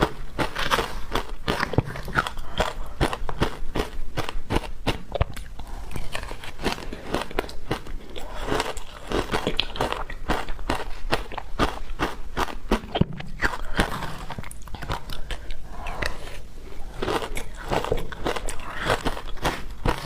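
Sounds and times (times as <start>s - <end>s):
ice crunching between teeth: 0.0s - 20.0s.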